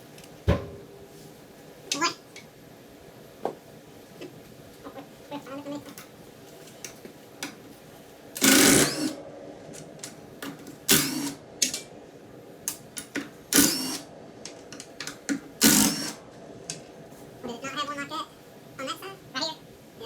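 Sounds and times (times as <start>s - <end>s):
tool rapid rattling: 8.4s - 9.2s.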